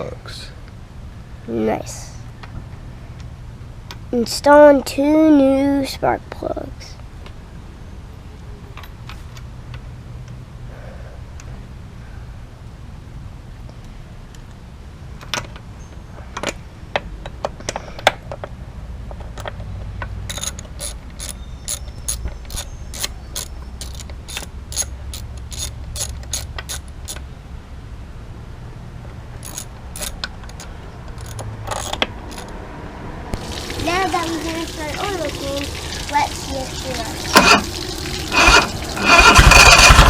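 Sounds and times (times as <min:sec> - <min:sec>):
ratchet wrench clicking: 0:20.3 - 0:27.2, 0:29.4 - 0:32.6, 0:38.4 - 0:40.0.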